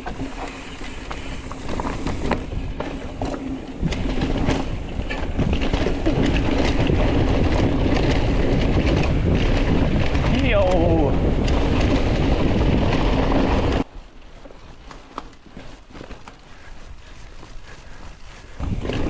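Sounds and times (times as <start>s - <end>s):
bike rattling knocks: 0.0s - 13.5s
wind on microphone: 0.0s - 13.8s, 16.8s - 19.0s
bike tyre rumble: 0.0s - 19.0s.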